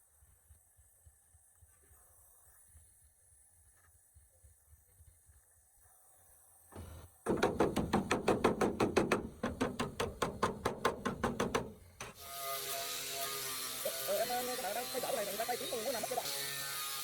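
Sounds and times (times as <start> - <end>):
hand filing scraping: 7.3 - 15.4
small electric power tool running: 12.1 - 17.0.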